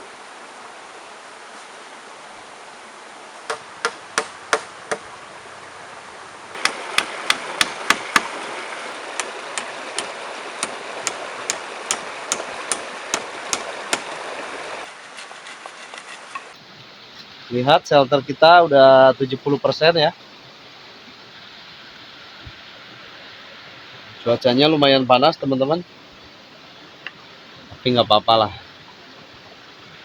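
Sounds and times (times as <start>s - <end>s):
river rushing: 0.0s - 30.0s
hammering: 3.5s - 5.1s, 6.6s - 8.4s, 9.2s - 14.1s.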